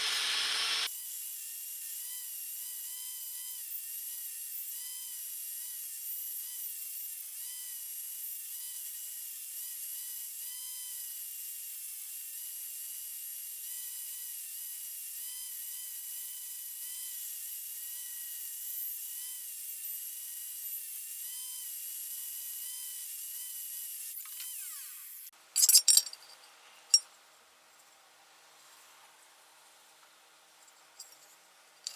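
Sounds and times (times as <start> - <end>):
power tool motor whining: 0.0 - 0.9, 20.6 - 25.3.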